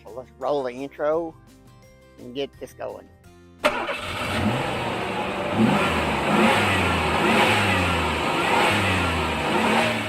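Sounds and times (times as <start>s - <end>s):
car engine revving: 3.7s - 10.0s.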